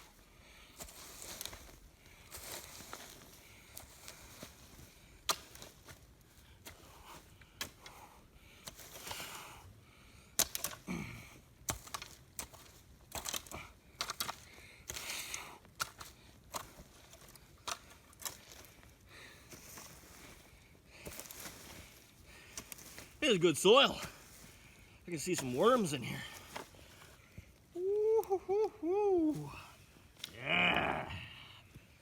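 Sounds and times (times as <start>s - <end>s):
dirt and leaves scraping: 0.0s - 7.9s, 8.6s - 9.6s, 11.7s - 27.9s
sticks snapping: 10.4s - 10.9s, 11.7s - 18.7s.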